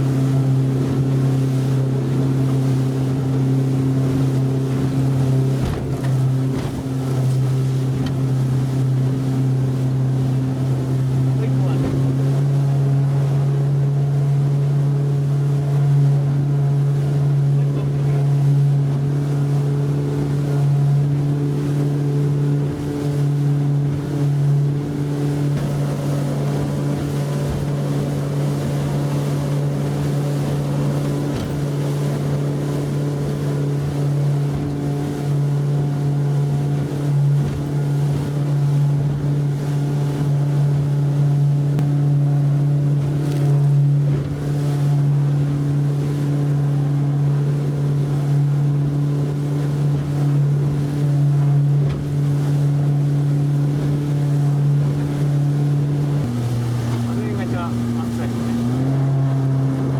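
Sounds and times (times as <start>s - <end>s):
wind on microphone: 0.0s - 13.0s
outboard motor droning: 0.0s - 59.9s
water rushing past hull: 0.0s - 59.9s.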